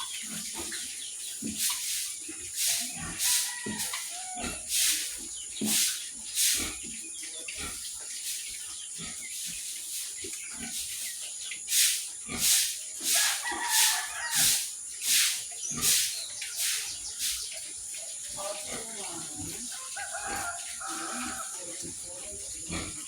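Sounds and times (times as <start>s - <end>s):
pig grunting: 7.5s - 8.0s, 18.3s - 23.0s.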